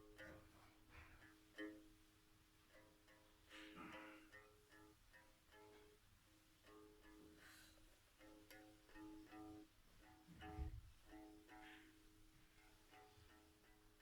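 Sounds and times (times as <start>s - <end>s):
one-string ukulele plucked softly: 8.2s - 12.0s.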